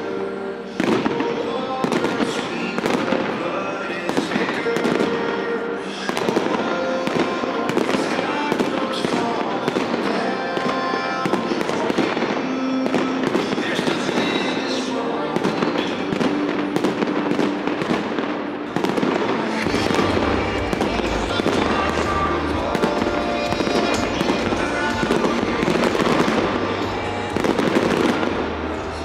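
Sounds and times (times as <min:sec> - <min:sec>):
fireworks bangs and crackles: 0:00.0 - 0:29.0
loud music: 0:00.0 - 0:29.0
heavy bass: 0:18.9 - 0:29.0.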